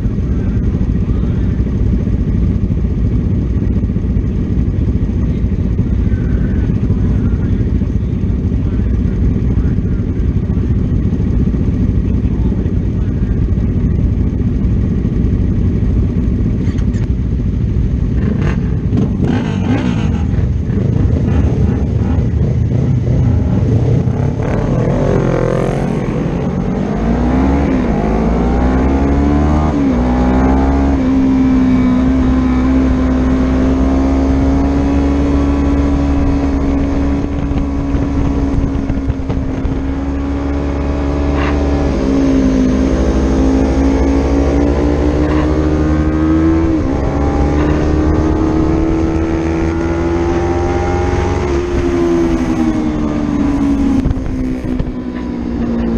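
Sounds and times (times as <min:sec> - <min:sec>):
racing motorcycle engine revving: 0:00.0 - 0:55.9
wind rush: 0:35.2 - 0:40.9.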